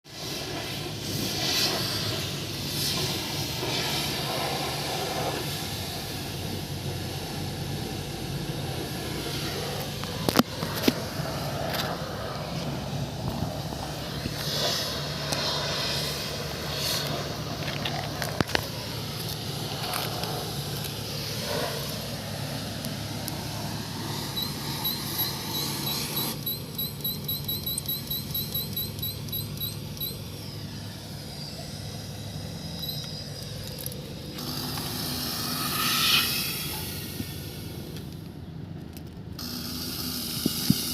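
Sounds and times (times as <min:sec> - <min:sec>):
air hissing loudly: 0:00.1 - 0:38.1, 0:39.4 - 0:40.9
air compressor humming: 0:00.1 - 0:38.4, 0:39.4 - 0:40.9
short high beeps: 0:24.3 - 0:30.6, 0:32.6 - 0:33.3.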